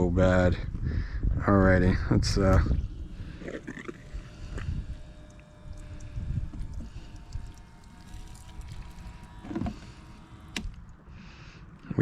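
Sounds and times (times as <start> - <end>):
wind rumbling on microphone: 0.0 - 11.3
faint liquid pouring: 3.5 - 11.0.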